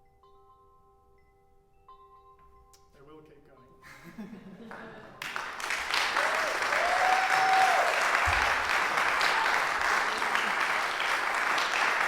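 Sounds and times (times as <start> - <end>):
audience applauding: 4.7 - 12.0
person cheering: 6.0 - 12.0.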